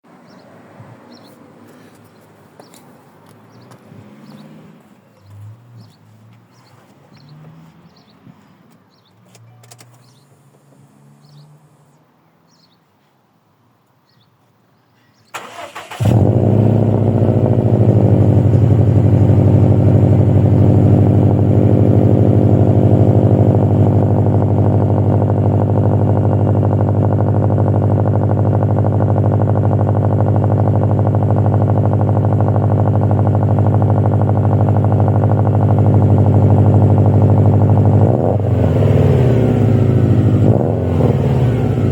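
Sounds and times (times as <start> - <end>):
car engine cold idling: 15.4 - 41.9.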